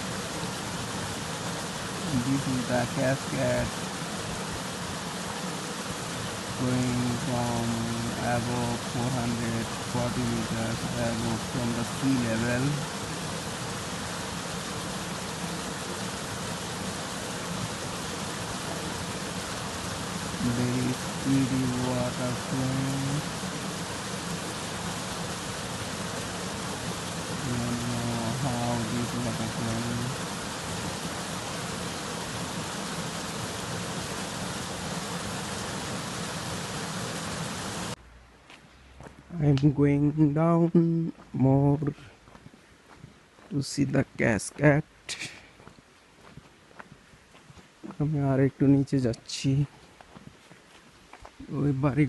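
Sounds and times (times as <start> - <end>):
water rushing down rocky channel: 0.0 - 38.0.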